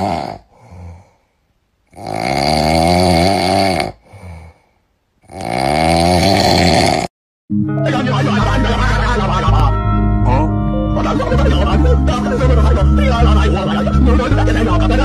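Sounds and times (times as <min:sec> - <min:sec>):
loud snoring: 0:00.0 - 0:00.5, 0:01.9 - 0:04.5, 0:05.2 - 0:07.1
quiet breath: 0:00.4 - 0:01.5, 0:04.0 - 0:05.0.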